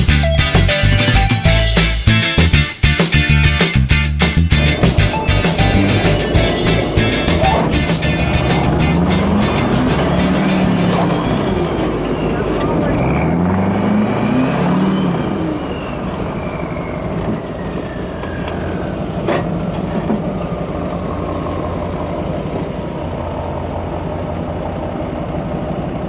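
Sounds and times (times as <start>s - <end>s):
diesel engine revving: 0.0s - 26.0s
high gliding whistle: 9.2s - 19.3s.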